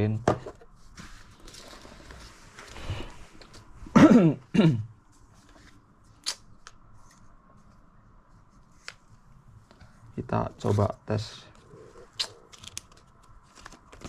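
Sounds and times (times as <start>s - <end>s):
packaging rustling: 12.0s - 14.0s.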